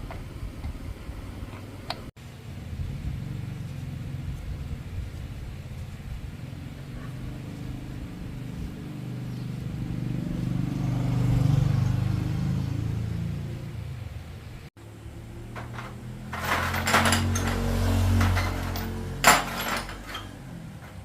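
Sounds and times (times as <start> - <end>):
motorcycle engine running: 2.5 - 13.7.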